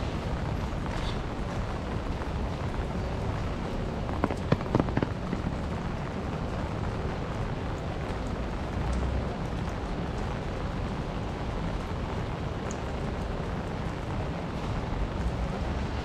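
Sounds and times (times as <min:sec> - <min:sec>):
rain on wet pavement: 0:00.0 - 0:16.0
sharp taps: 0:04.2 - 0:05.4.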